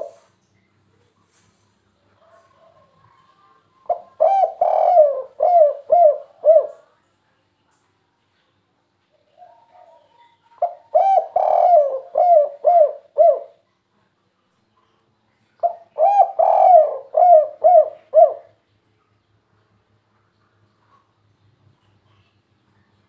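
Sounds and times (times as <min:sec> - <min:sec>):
dove cooing: 0:00.0 - 0:00.2, 0:02.2 - 0:06.9, 0:09.4 - 0:13.6, 0:15.6 - 0:18.6.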